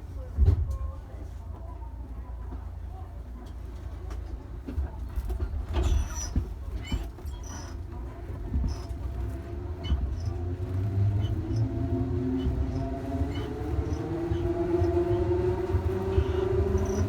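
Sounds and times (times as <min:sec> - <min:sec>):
train rumble: 0:00.0 - 0:17.0
traction motor whine rising: 0:10.7 - 0:17.0.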